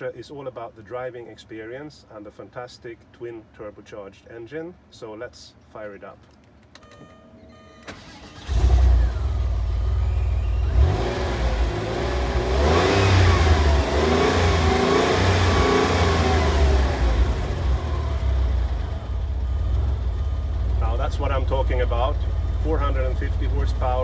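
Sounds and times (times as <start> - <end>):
car engine idling: 7.8 - 24.0
car engine starting and revving: 7.8 - 24.0.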